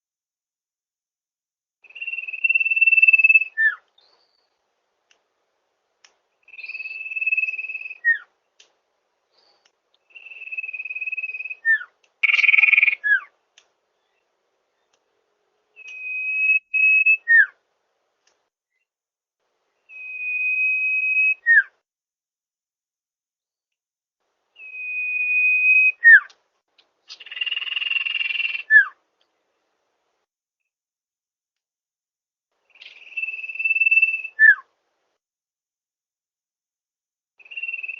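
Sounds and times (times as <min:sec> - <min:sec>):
bird whistles: 0:01.8 - 0:04.4, 0:06.5 - 0:08.3, 0:10.1 - 0:13.3, 0:15.8 - 0:17.6, 0:19.9 - 0:21.7, 0:24.6 - 0:26.3, 0:27.1 - 0:29.0, 0:32.7 - 0:34.7, 0:37.4 - 0:37.9.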